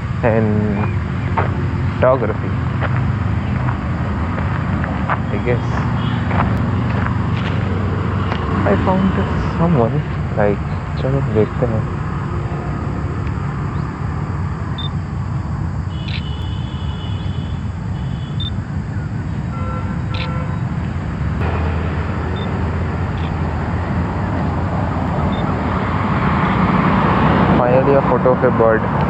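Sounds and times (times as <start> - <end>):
vehicle approaching: 0.0 - 16.3, 17.6 - 29.0
road traffic rumble: 0.0 - 29.0
sharp clicks: 16.0 - 16.4.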